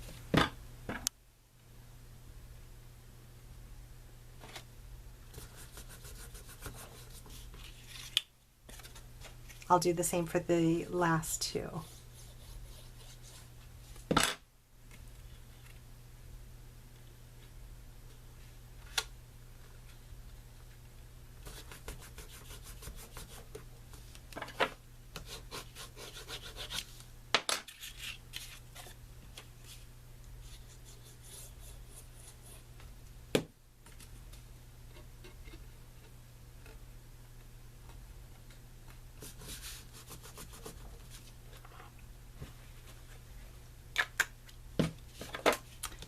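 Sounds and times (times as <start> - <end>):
paper rubbed on work surface: 5.4 - 7.9, 11.8 - 13.5, 21.4 - 23.5, 25.3 - 27.0, 39.2 - 41.3.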